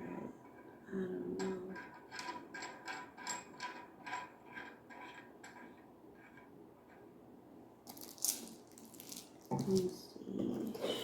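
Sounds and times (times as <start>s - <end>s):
plastic parts rustling: 7.8s - 11.0s.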